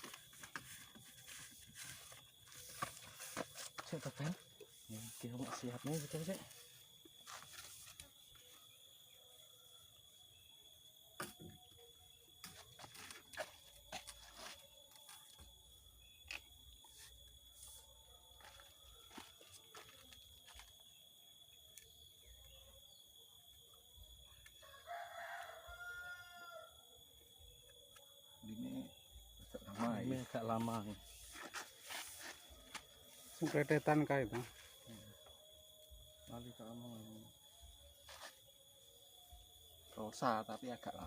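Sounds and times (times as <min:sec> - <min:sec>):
rooster crowing: 0:24.4 - 0:27.0.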